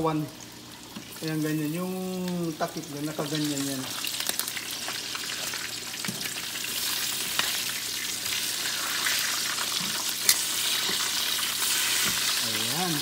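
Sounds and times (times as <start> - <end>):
meat sizzling in hot oil: 0.0 - 13.0
metal tongs in pan: 7.2 - 7.7, 8.6 - 13.0.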